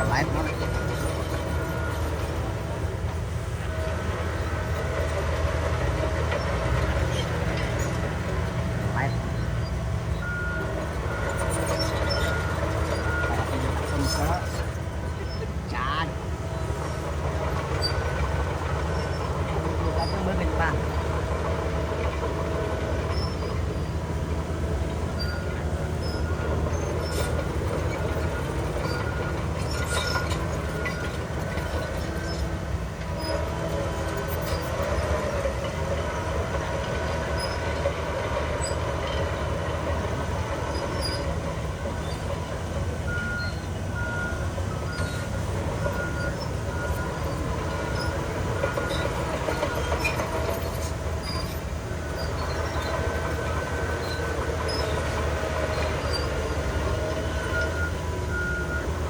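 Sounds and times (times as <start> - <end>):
bulldozer diesel engine: 0.0 - 59.0
steel tracks squealing: 0.0 - 59.0.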